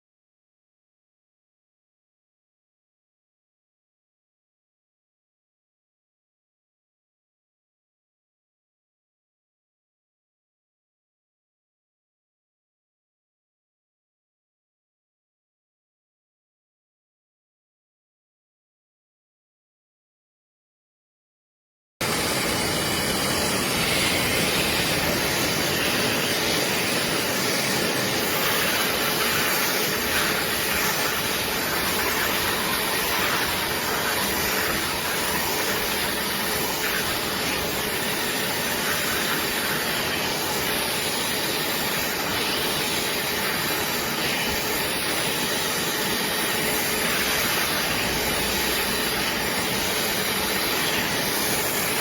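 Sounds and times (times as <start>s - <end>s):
upholstery cleaner suction motor hissing: 22.0s - 52.0s.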